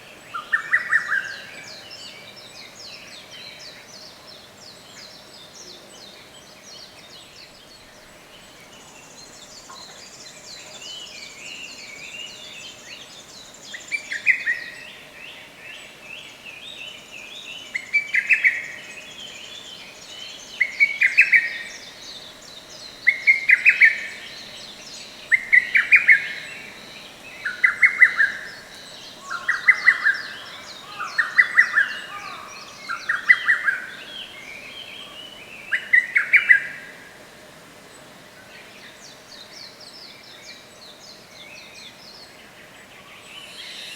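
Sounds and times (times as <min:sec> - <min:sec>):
birds twittering: 0:15.8 - 0:37.1, 0:38.5 - 0:43.9.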